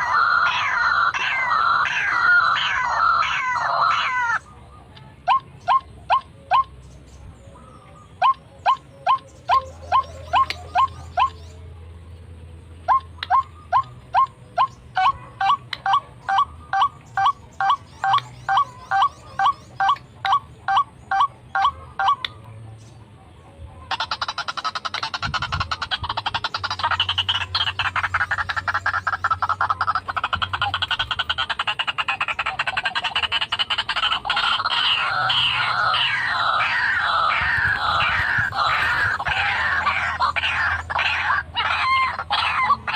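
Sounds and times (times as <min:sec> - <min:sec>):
bird sharp upward-sliding calls: 0:00.0 - 0:04.6, 0:23.9 - 0:42.9
harsh croaking bird chorus: 0:00.0 - 0:11.6, 0:12.6 - 0:42.9.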